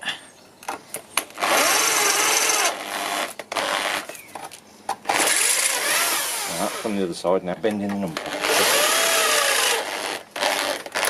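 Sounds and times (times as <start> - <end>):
handheld power tool running: 1.4 - 4.2, 5.1 - 6.9, 8.2 - 11.0.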